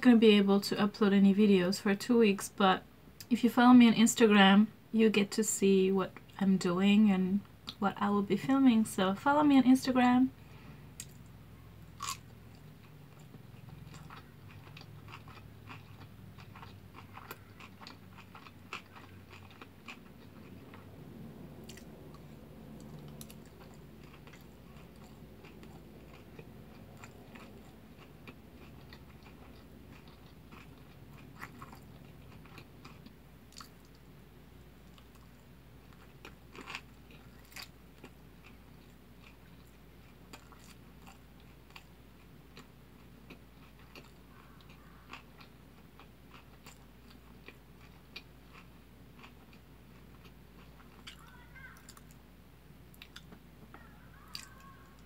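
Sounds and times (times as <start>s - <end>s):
wet chewing clicks and smacks: 12.0s - 20.9s, 21.6s - 34.1s, 34.8s - 52.2s, 52.9s - 54.7s.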